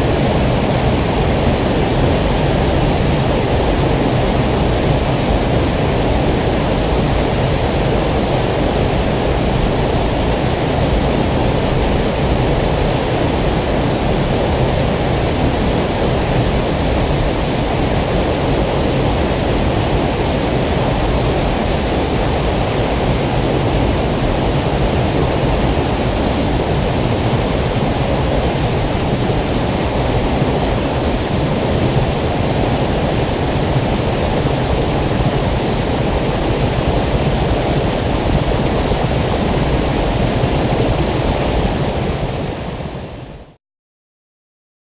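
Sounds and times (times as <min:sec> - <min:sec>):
flowing water rushing: 0:00.0 - 0:43.5.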